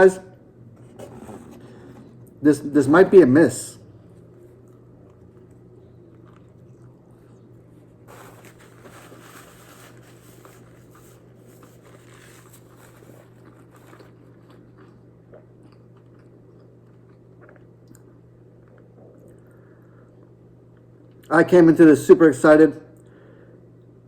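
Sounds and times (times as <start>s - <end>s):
steady low hum: 0.0s - 24.0s
person chewing: 4.4s - 8.7s, 11.6s - 19.5s.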